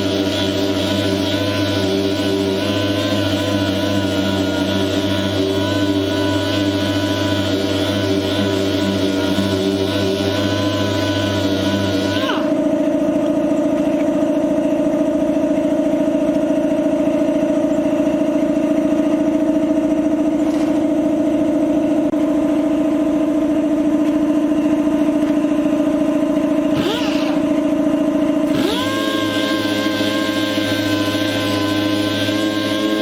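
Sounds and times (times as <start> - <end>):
power sander whining: 0.0 - 14.1, 26.3 - 33.0.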